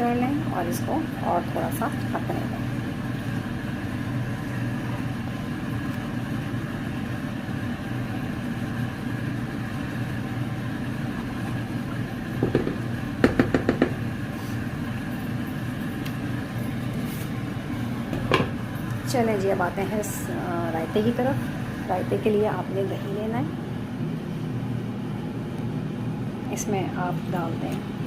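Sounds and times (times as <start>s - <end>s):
low kitchen hum: 0.0s - 28.0s
spoon knocking against pot: 12.4s - 14.0s.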